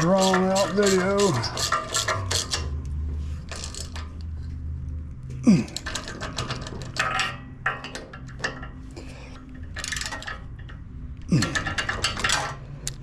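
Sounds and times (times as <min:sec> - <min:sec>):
metal engine parts clinking: 0:00.0 - 0:04.8, 0:05.5 - 0:13.0.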